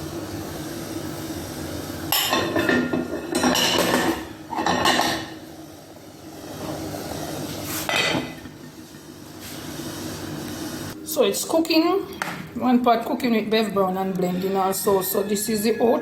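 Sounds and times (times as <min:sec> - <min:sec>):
pots and dishes clattering: 0:02.1 - 0:05.4, 0:07.8 - 0:09.1.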